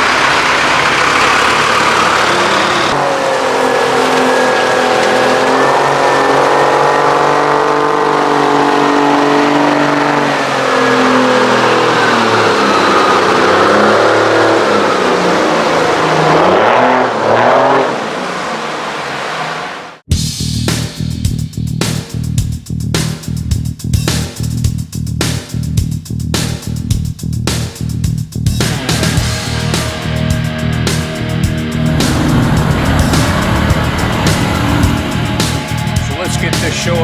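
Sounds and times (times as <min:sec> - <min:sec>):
truck diesel engine revving: 0:00.0 - 0:17.8, 0:31.6 - 0:36.9.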